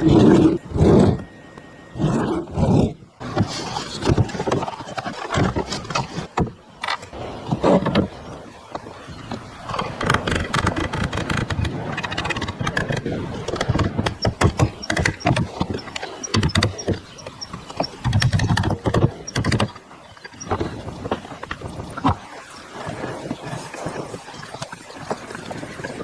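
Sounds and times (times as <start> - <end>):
rough scraping: 0.0 - 1.3, 1.9 - 8.1
knocks and clicks: 9.7 - 22.2.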